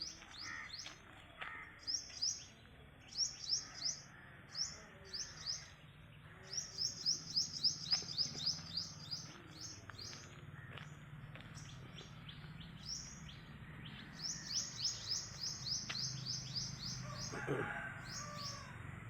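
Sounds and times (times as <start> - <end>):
bird chirping: 1.8 - 10.3, 11.3 - 17.4.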